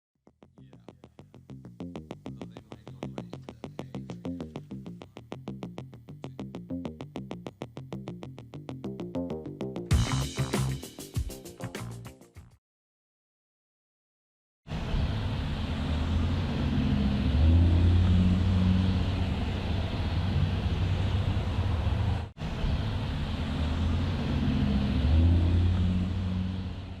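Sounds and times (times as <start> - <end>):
engine running: 14.7 - 27.0.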